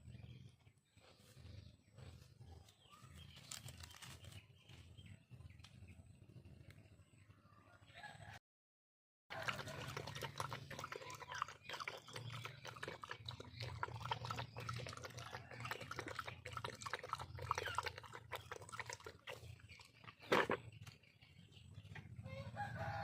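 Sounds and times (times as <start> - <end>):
dogs chewing watermelon: 9.3 - 20.5.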